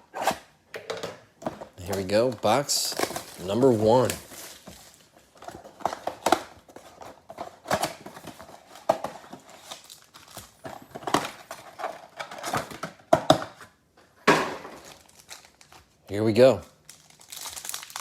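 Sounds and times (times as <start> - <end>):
cardboard rustling: 1.5 - 13.6
plastic wrapping crinkling: 1.7 - 12.8, 14.7 - 18.0.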